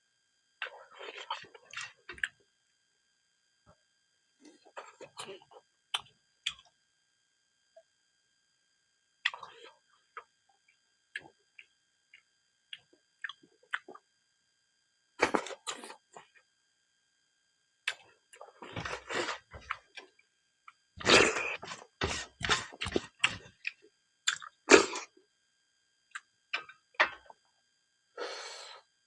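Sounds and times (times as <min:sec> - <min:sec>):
chewing with wet smacks and crunches: 0:09.2 - 0:09.6, 0:20.7 - 0:24.6.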